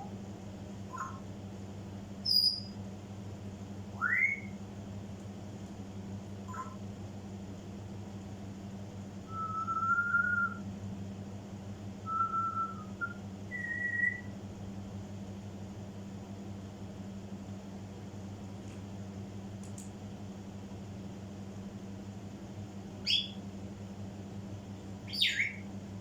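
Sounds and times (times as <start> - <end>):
steady low hum: 0.0 - 26.0
parrot whistling notes: 0.9 - 1.2, 2.3 - 2.7, 4.0 - 4.5, 12.1 - 14.3, 25.1 - 25.6.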